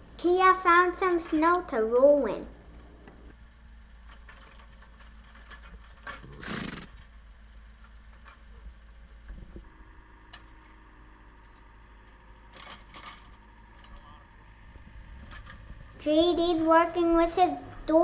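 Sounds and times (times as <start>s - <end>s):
horse snorting: 6.1s - 7.0s
faint low rumble: 6.2s - 18.0s.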